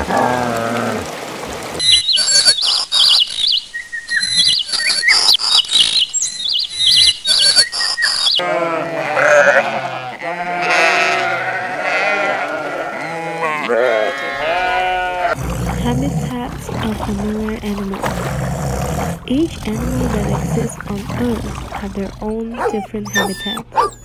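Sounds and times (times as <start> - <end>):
birds twittering: 1.8 - 8.4, 18.5 - 24.0
sheep bleating: 8.4 - 15.4, 22.5 - 24.0.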